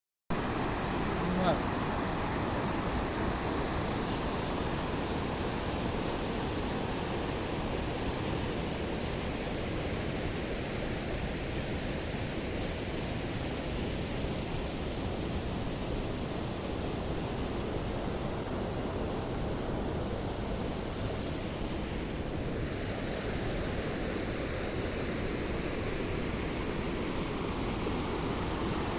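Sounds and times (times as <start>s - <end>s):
waterfall rushing: 0.4s - 11.8s.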